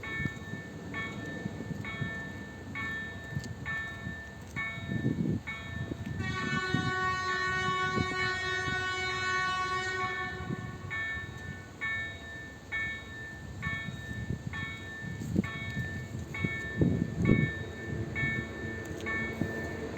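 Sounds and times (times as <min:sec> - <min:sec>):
level crossing warning bell: 0:00.0 - 0:19.9
locomotive horn blast: 0:06.2 - 0:11.0.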